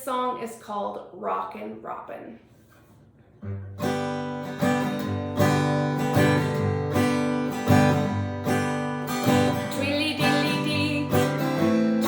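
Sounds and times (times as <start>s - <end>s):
acoustic guitar strumming chords: 3.4s - 12.0s.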